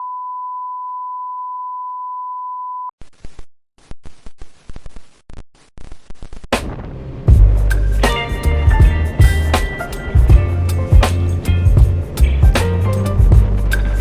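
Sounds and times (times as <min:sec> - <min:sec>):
crackling static noise: 0:03.0 - 0:08.0.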